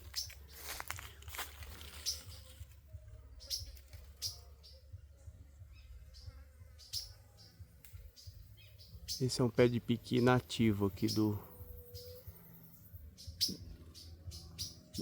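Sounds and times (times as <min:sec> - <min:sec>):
footsteps crunching dry leaves: 0:00.0 - 0:02.8
high bird chirps: 0:03.3 - 0:04.9, 0:05.8 - 0:15.0.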